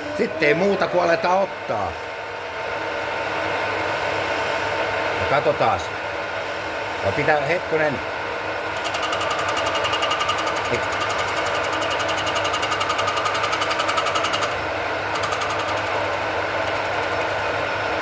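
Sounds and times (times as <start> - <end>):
machine motors humming: 8.5 - 18.0
grinder wheel pulsing on shaft: 8.7 - 18.0.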